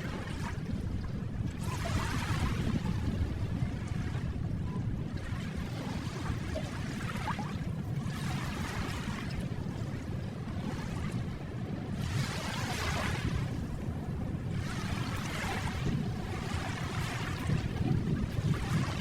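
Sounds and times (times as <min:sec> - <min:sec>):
ocean waves washing on shore: 0:00.0 - 0:19.0.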